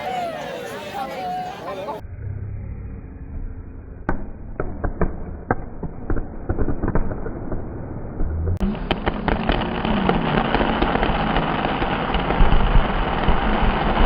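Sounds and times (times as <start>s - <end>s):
fireworks popping and cracking: 4.1s - 14.0s.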